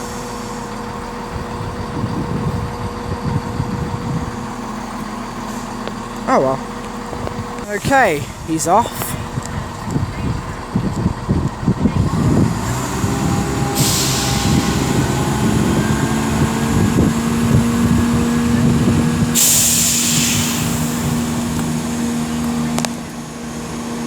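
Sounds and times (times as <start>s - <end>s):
diesel train engines accelerating: 0.0s - 24.0s
air hiss bursts: 13.5s - 15.3s, 19.4s - 21.4s.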